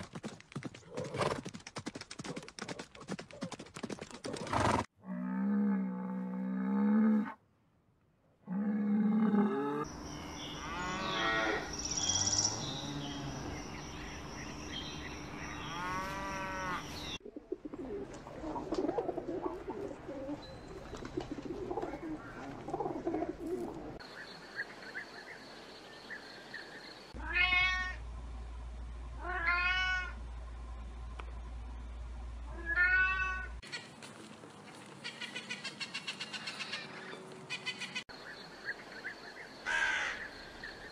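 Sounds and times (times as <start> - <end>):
cow mooing: 10.6 - 11.7, 15.6 - 16.9
pigeons cooing: 16.4 - 24.0.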